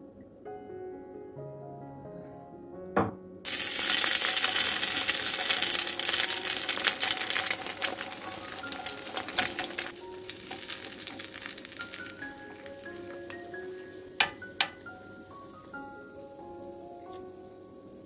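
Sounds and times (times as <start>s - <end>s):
batter sizzling in hot oil: 3.5s - 18.0s
metal spoon tapping pan: 5.2s - 14.9s.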